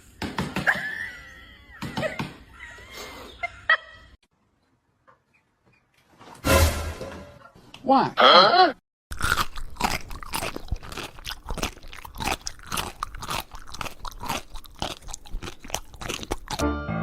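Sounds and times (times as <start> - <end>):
pet chewing crunchy food: 9.1 - 16.6.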